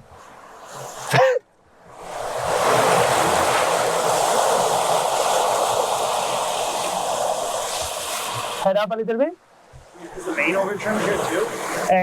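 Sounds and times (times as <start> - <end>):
water rushing past sailboat: 0.0 - 12.0
wind rushing: 1.8 - 8.7.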